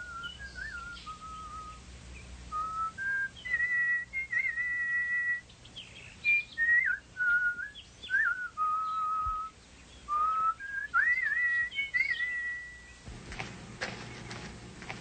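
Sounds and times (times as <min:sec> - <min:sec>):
person whistling melody: 0:00.0 - 0:01.8, 0:02.5 - 0:05.4, 0:06.2 - 0:09.5, 0:10.1 - 0:13.0.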